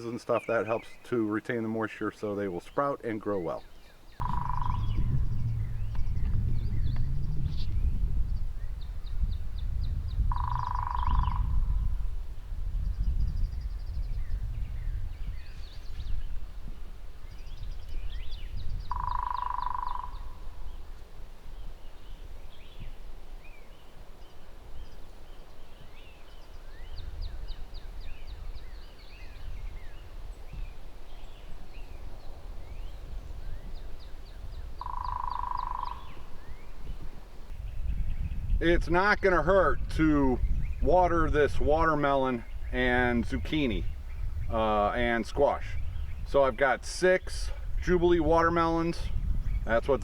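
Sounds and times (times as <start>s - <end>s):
birds singing: 0.0s - 50.0s
steady mid-pitched tone: 4.2s - 6.2s
low rumble: 4.2s - 8.9s.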